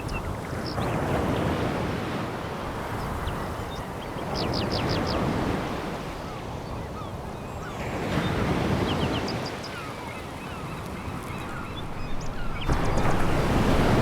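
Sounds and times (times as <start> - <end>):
waves washing onto pebbles: 10.6 - 14.0.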